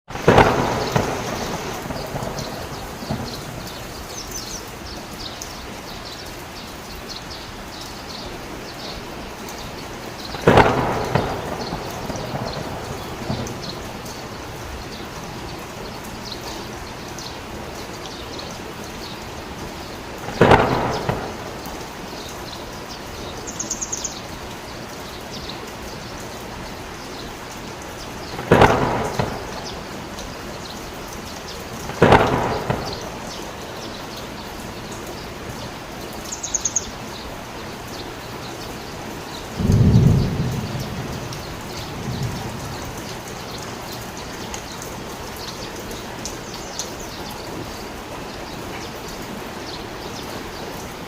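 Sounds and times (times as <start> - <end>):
thunder cracks: 0.1 - 3.9, 10.4 - 14.6, 20.2 - 21.7, 28.4 - 29.9, 31.9 - 33.4, 39.5 - 43.6
heavy rain: 0.1 - 51.0.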